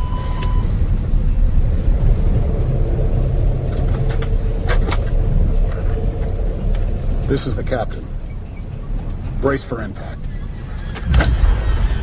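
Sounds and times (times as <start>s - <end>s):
steady beep tone: 0.0s - 0.8s
low rumble of airflow: 0.0s - 9.4s.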